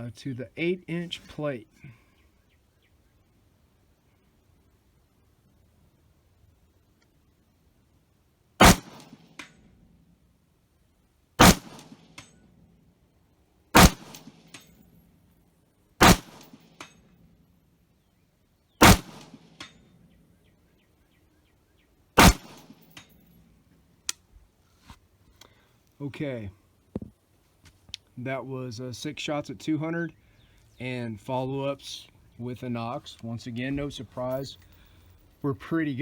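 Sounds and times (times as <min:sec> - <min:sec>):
rifle shots: 0:08.6 - 0:09.4, 0:11.4 - 0:12.2, 0:13.7 - 0:14.6, 0:16.0 - 0:16.8, 0:18.8 - 0:19.6, 0:22.2 - 0:23.0.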